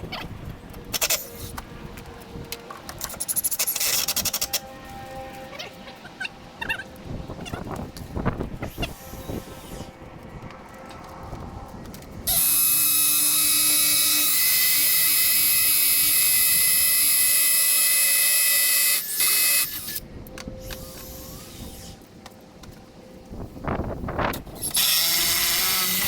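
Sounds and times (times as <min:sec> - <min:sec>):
power drill whining: 0:12.3 - 0:20.0, 0:24.6 - 0:26.0.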